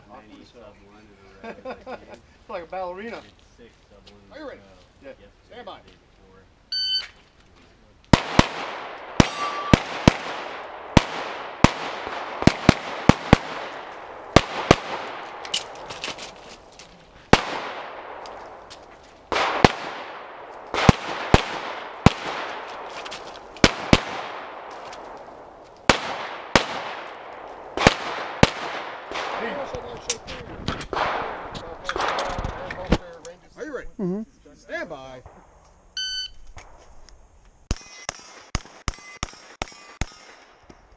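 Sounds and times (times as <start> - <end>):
pistol shots with echo: 8.1 - 16.0, 17.3 - 18.7, 19.3 - 23.0, 23.6 - 24.8, 25.9 - 30.0, 30.8 - 32.6.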